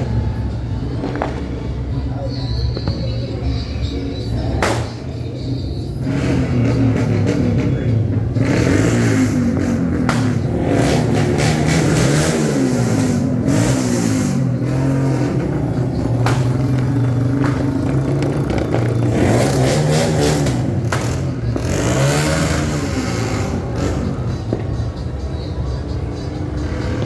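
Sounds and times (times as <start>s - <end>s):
vehicle engines revving: 0.0s - 27.0s
firecracker pops: 1.0s - 1.6s, 4.6s - 5.1s, 10.0s - 10.5s, 16.2s - 18.9s, 20.4s - 21.3s.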